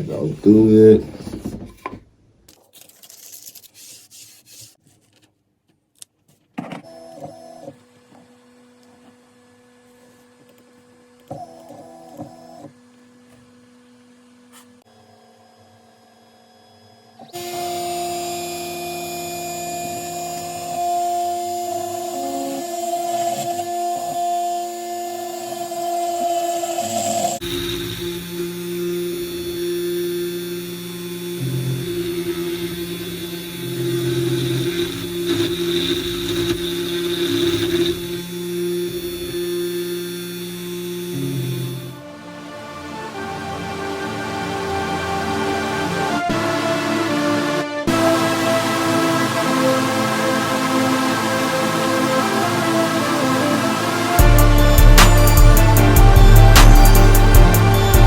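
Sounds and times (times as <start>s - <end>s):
router machine whine and hiss: 7.8s - 42.1s, 47.9s - 58.0s.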